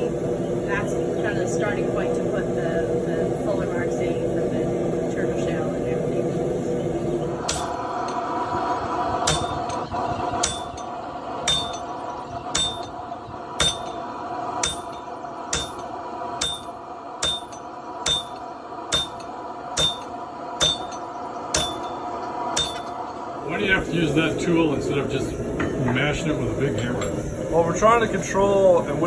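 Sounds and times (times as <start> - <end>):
steady hum: 0.0 - 29.0
hammer striking hot steel on anvil: 7.4 - 8.3, 9.2 - 23.2, 26.7 - 27.3.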